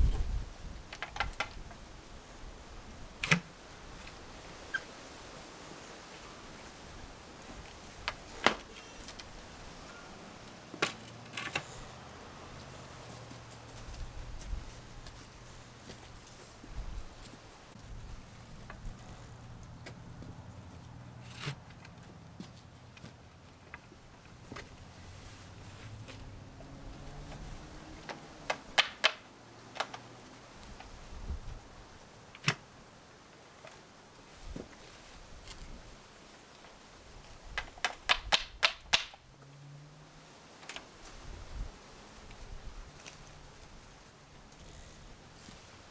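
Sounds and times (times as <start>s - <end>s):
steady low background noise: 0.0s - 37.9s
sharp knocks and clicks: 37.6s - 39.2s.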